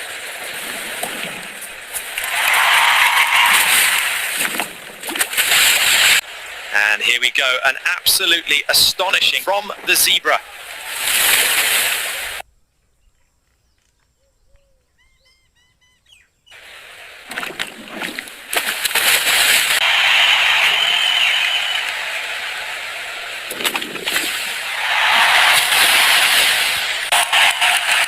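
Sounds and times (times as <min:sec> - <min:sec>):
loud splash: 0:00.0 - 0:06.7, 0:09.0 - 0:12.4, 0:16.6 - 0:22.1, 0:23.3 - 0:28.0
water splashing: 0:00.0 - 0:12.4, 0:16.6 - 0:28.0
faint bird chirps: 0:12.7 - 0:16.6.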